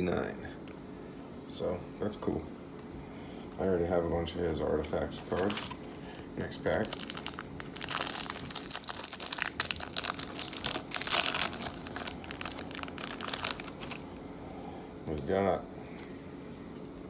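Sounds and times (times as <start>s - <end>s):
cards rustling: 5.2s - 17.0s
wrapper tearing and crinkling: 5.3s - 5.8s, 6.6s - 14.0s.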